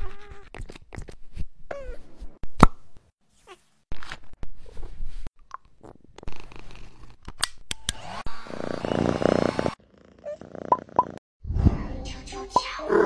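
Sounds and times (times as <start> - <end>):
cat purring: 8.6 - 11.2.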